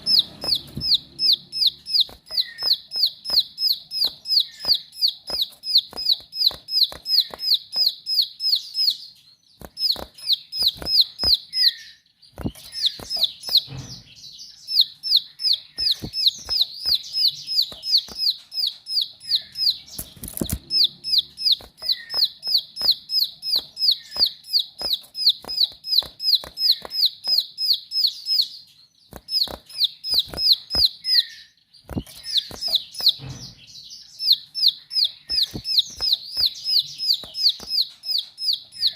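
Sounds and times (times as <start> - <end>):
sharp clicks: 0.0 - 8.8, 9.6 - 11.7, 12.3 - 13.9, 15.0 - 27.6, 29.1 - 31.0, 31.8 - 33.5, 34.3 - 38.9
bird sharp high chirps: 0.0 - 38.9.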